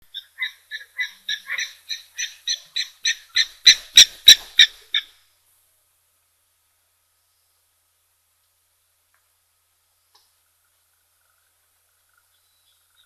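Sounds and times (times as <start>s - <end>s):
bird calling short repeated notes: 0.0s - 5.1s.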